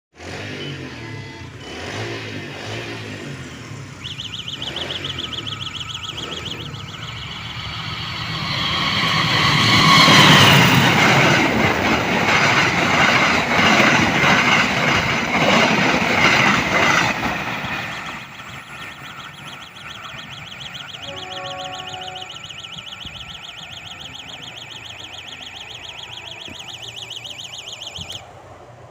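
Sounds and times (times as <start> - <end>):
passenger train rumble: 0.2 - 28.9
fast pulsing electronic beep: 4.0 - 11.4, 18.4 - 28.2
wheels clacking over rail joints: 4.0 - 28.4.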